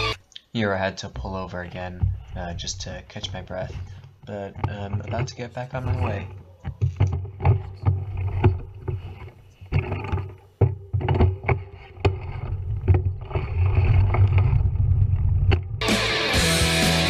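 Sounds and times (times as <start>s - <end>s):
music: 0.0s - 0.2s, 15.8s - 17.0s
muffled knocks and clicks: 1.7s - 13.4s
low rumble: 12.4s - 15.8s.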